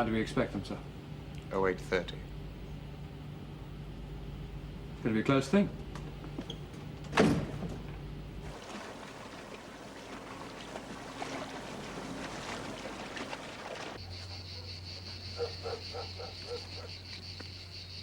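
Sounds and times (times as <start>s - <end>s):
ship engine noise: 0.0s - 14.0s
water rushing: 8.4s - 14.0s
crickets chirping: 13.0s - 18.0s.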